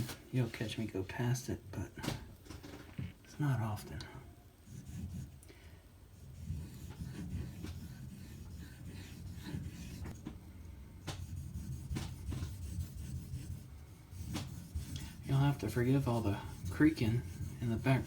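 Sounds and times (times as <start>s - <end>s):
knife scraping on whetstone: 6.4s - 10.2s, 11.4s - 18.0s.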